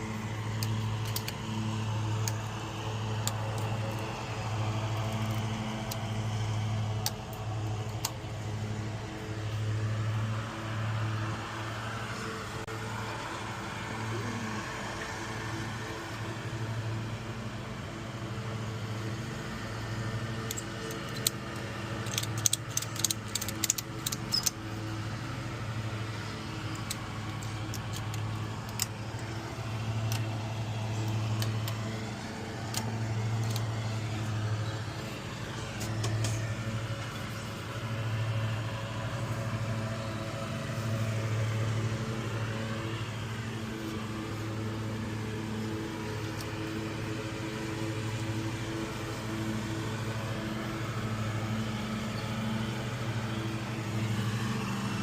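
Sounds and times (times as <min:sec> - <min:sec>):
sharp clicks and rattles: 0:00.0 - 0:09.2, 0:20.3 - 0:25.3, 0:25.9 - 0:37.7
electric power tool motor: 0:00.0 - 0:17.5, 0:18.2 - 0:55.0.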